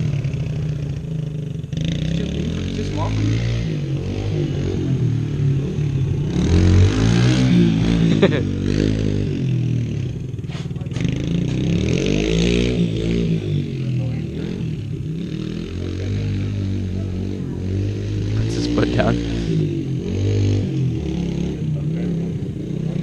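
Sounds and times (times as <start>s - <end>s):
small dirt bike engine revving: 0.0s - 23.0s.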